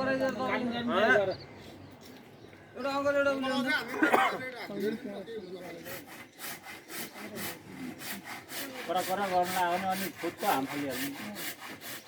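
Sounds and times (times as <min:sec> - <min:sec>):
hand saw cutting wood: 0:05.7 - 0:12.0.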